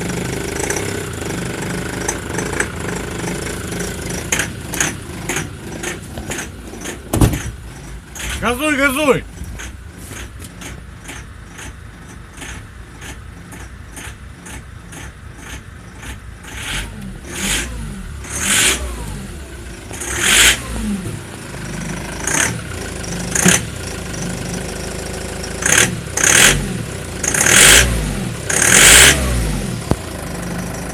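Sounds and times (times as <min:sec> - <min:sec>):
engine revving: 0:14.0 - 0:30.9.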